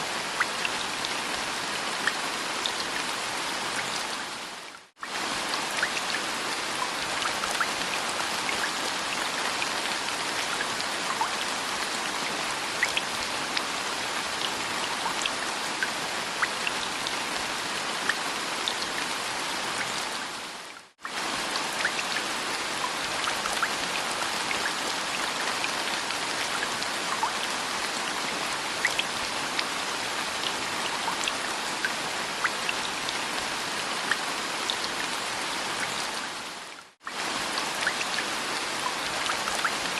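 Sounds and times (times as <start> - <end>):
rain falling: 0.0 - 39.9
raindrops ticking on a surface: 36.8 - 39.9.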